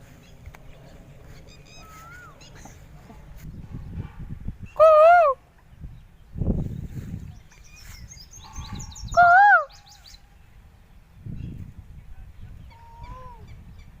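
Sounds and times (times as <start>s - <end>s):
small birds chirping: 0.0s - 4.8s, 5.5s - 14.0s
bird rising and falling call: 0.2s - 2.9s, 7.5s - 10.4s
faint level bird call: 1.3s - 2.8s.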